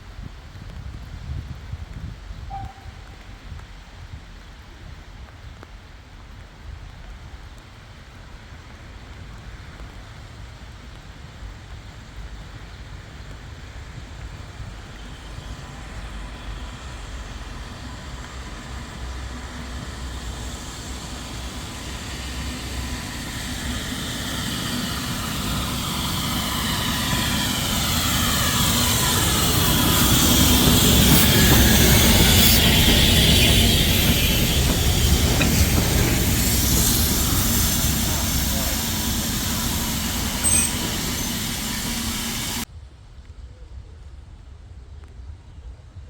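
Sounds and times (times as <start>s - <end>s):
steam train passing: 2.4s - 3.6s, 8.0s - 42.7s
high tones sliding downward: 15.2s - 42.6s.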